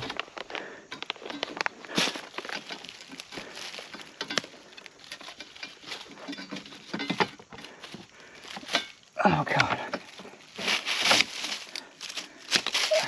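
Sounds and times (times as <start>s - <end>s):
crackling and rustling dry brush: 0.0s - 13.0s.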